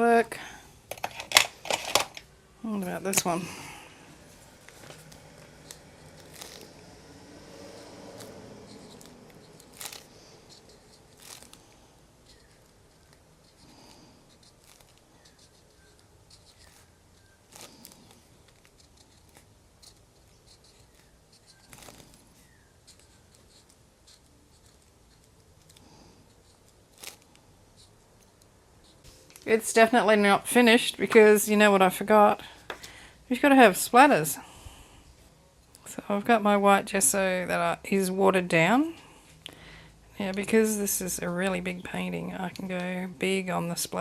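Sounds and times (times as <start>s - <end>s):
marker scratching on paper: 7.6s - 25.6s.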